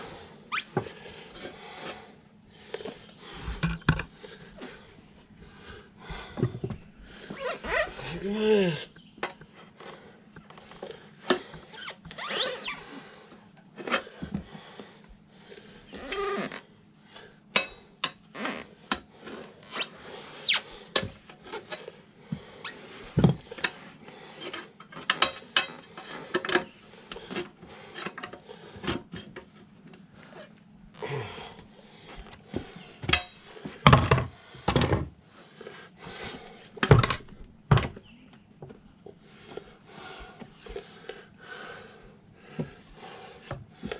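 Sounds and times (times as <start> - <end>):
tire squeaks: 0.5 - 1.0, 7.2 - 8.1, 11.7 - 13.1, 15.9 - 16.7, 18.3 - 20.8
metal tools clicking and knocking: 25.1 - 26.7, 33.0 - 35.0, 36.8 - 38.1.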